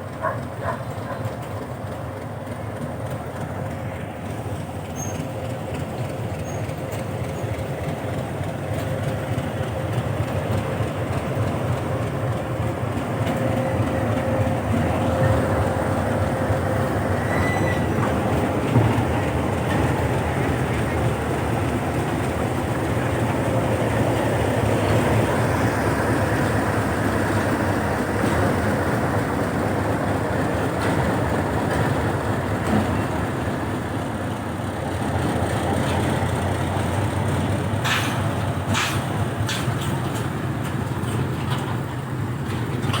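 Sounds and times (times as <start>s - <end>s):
locomotive engine drone: 0.0s - 43.0s
sharp clacks: 37.8s - 41.8s.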